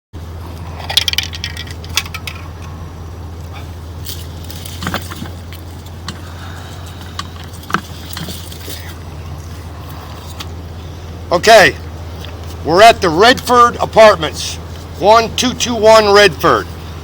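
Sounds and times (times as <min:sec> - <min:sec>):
steady low hum: 0:00.2 - 0:17.0
metallic clinks and rattles: 0:00.7 - 0:02.8, 0:04.0 - 0:06.1, 0:06.7 - 0:09.0.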